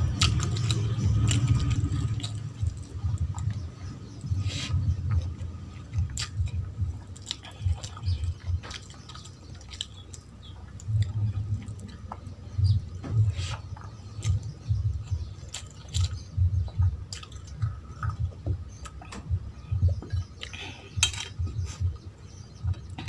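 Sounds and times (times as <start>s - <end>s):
close chewing with mouth smacks: 0.0s - 23.0s
low thuds: 10.9s - 20.4s.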